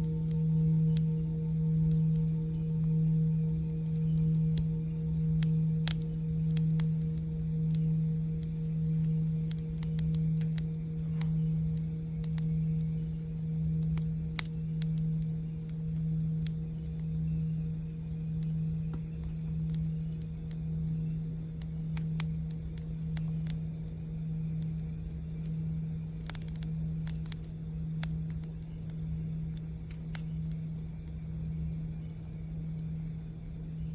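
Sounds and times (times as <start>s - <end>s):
campfire crackling and popping: 0.0s - 33.9s
singing bowl low tone: 0.0s - 33.9s.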